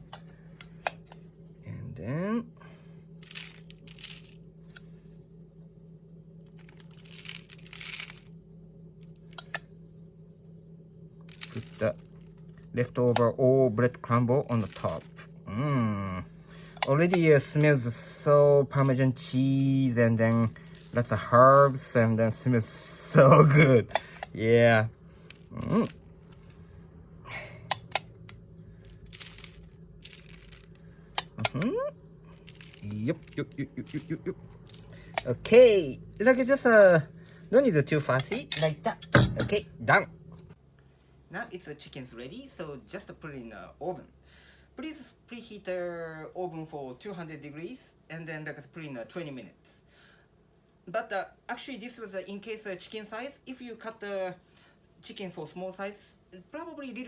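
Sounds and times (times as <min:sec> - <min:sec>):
steady low hum: 0:00.0 - 0:57.0
person humming: 0:15.4 - 0:16.3, 0:25.5 - 0:26.0, 0:31.4 - 0:32.0
breadcrumbs rustling and crunching: 0:32.1 - 0:36.5.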